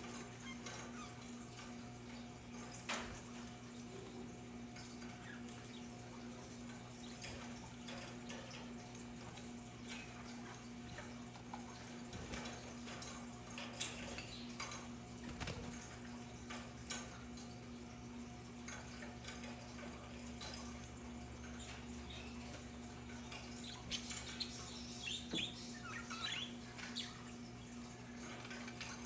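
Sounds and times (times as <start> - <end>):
budgerigars chirping: 23.2 - 27.3.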